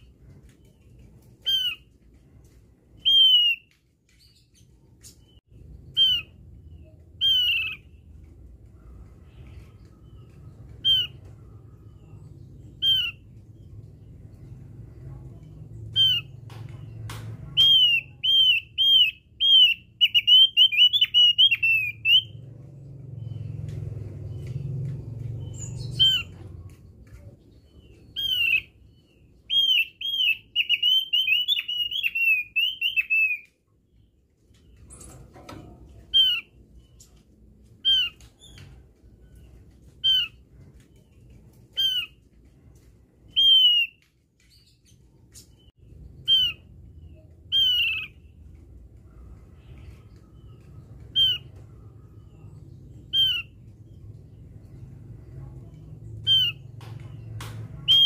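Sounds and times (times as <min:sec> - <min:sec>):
bird high chirps: 0:00.0 - 0:42.4, 0:43.2 - 0:58.0.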